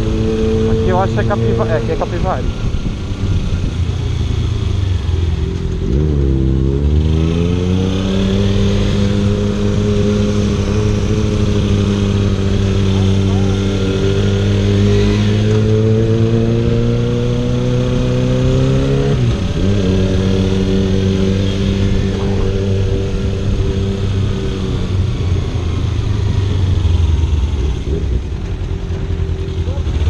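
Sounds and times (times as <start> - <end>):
motorcycle engine running: 19.4 - 30.0.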